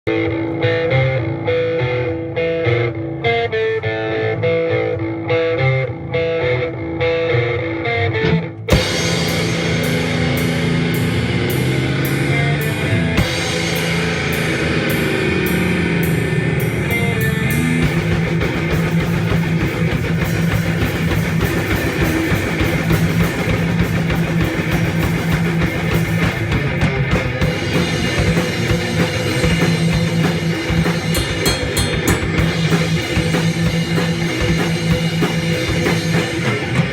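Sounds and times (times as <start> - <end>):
distorted electric guitars: 0.0 - 36.9
guitar picking a repeating figure: 0.1 - 36.9
metal band playing: 0.1 - 36.9
drum kit: 8.3 - 36.9.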